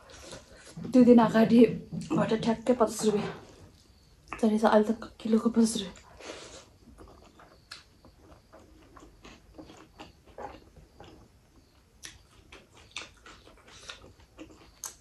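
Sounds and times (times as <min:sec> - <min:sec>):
chewing and wet mouth clicks: 0:06.9 - 0:11.3, 0:12.0 - 0:15.0.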